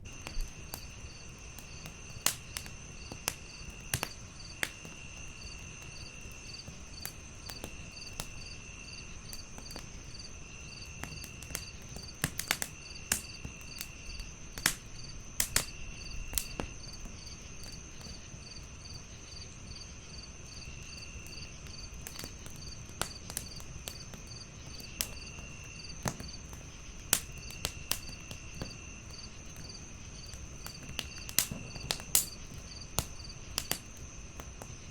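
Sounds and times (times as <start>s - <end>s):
crickets trilling and chirping: 0.0s - 34.9s
wood fire crackling and popping: 0.0s - 34.9s.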